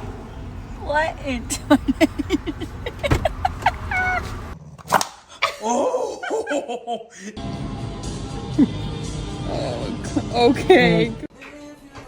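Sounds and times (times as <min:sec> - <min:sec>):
dog yipping and whining: 0:03.4 - 0:04.4.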